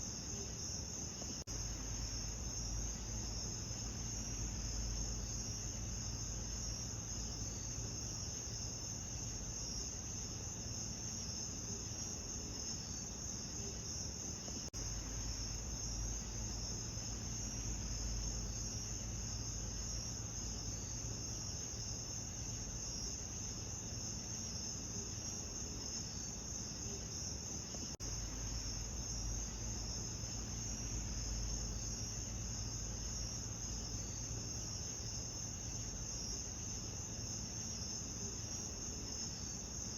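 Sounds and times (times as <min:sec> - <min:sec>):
crickets chirping: 0:00.0 - 0:39.9
low steady rumble: 0:01.4 - 0:11.0, 0:14.8 - 0:24.0, 0:27.6 - 0:37.2.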